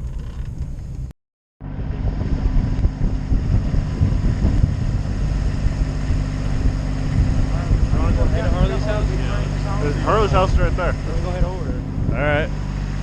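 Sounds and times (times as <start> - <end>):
road and wind noise: 0.0 - 13.0
vehicle engine running: 0.0 - 13.0.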